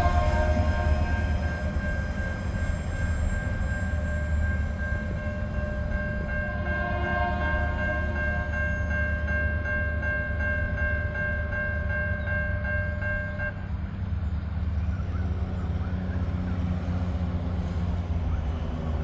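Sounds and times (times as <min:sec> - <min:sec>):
high warning tone: 0:00.0 - 0:13.6
train rumbling past: 0:00.0 - 0:19.0.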